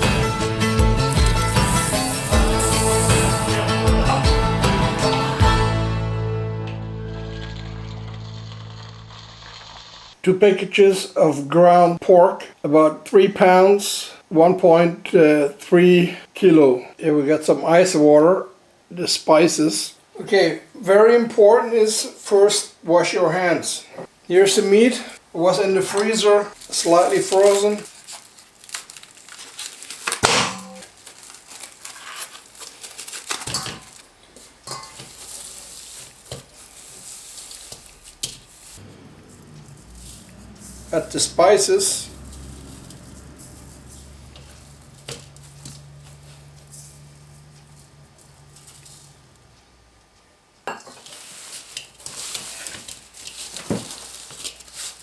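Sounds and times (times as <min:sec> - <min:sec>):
containers and utensils clicking: 0:01.1 - 0:03.6
plastic packaging crinkling and tearing: 0:01.1 - 0:03.7, 0:07.1 - 0:10.2, 0:26.0 - 0:38.8, 0:51.0 - 0:55.0
spices sprinkling: 0:01.1 - 0:03.7, 0:07.1 - 0:10.2.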